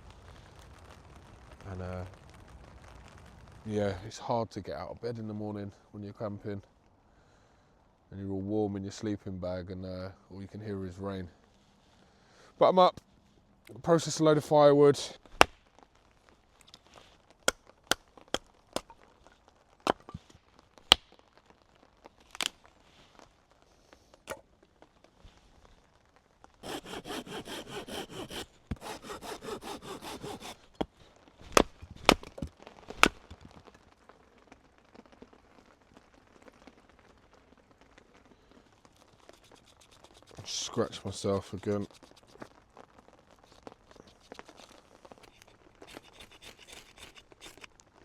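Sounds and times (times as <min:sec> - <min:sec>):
chopping wood: 0:15.3 - 0:15.6, 0:17.4 - 0:19.0, 0:19.9 - 0:21.1, 0:26.6 - 0:33.5
hand saw cutting log: 0:26.6 - 0:30.7, 0:31.5 - 0:33.3, 0:45.2 - 0:47.7.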